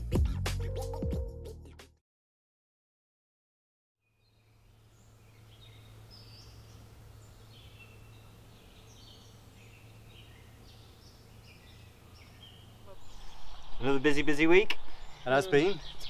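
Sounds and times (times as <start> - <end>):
birds singing and chirping: 4.1 - 16.0.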